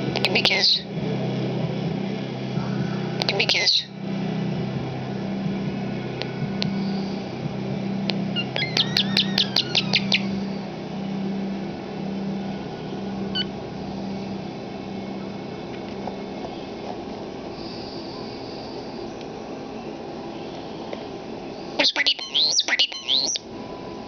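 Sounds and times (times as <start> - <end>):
steady low hum: 0.0 - 24.0
starling chirps: 0.2 - 0.9, 2.6 - 4.0, 8.2 - 10.8, 21.6 - 23.5.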